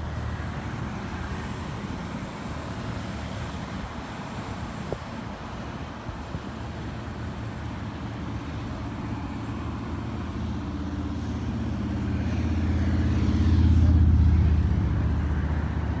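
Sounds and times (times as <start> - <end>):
traffic noise: 0.0 - 16.0
vehicle engine passing by: 10.2 - 16.0.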